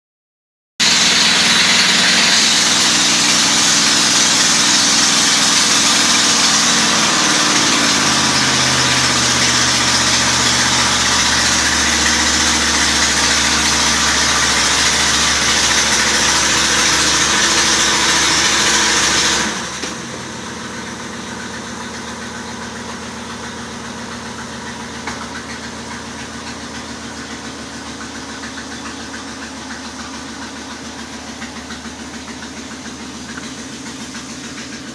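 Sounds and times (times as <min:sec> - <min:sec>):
loud rushing hiss: 0:00.8 - 0:11.2
car engine idling: 0:00.8 - 0:34.9.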